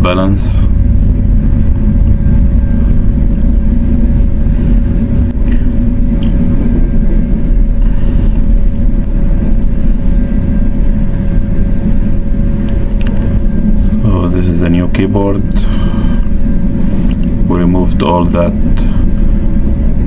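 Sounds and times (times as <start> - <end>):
low rumble with hum: 0.0 - 20.0.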